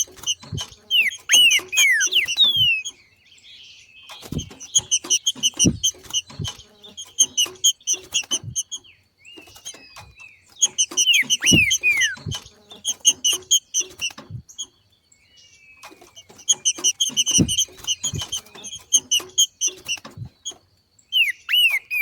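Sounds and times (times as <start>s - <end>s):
dull low knocks: 0.0s - 0.9s, 4.2s - 8.7s, 10.8s - 12.6s, 14.2s - 14.5s, 16.8s - 18.6s
bird chattering rapid notes: 0.0s - 3.0s, 4.2s - 8.8s, 9.5s - 14.2s
bird down-slurred whistles: 0.4s - 3.0s, 10.6s - 12.4s, 21.1s - 22.0s.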